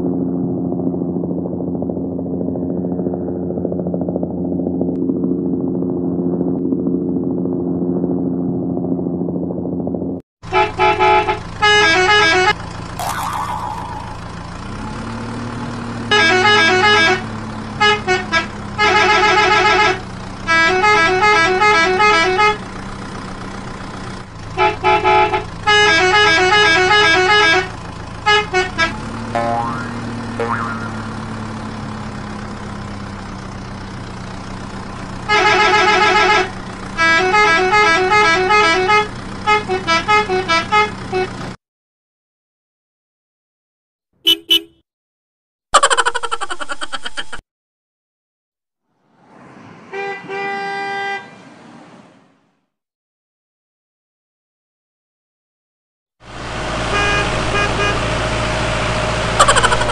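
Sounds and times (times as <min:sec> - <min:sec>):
engine hum: 0:00.0 - 0:41.6, 0:49.0 - 0:52.6, 0:56.2 - 0:59.9
vehicle horn honking: 0:10.5 - 0:12.6, 0:16.1 - 0:17.2, 0:24.6 - 0:29.8, 0:35.3 - 0:41.4, 0:44.2 - 0:44.8, 0:49.9 - 0:51.3, 0:56.9 - 0:58.0.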